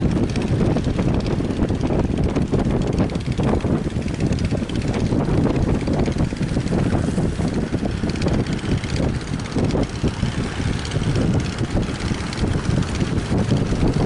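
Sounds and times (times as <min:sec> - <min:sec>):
wind buffeting the microphone: 0:00.0 - 0:14.0.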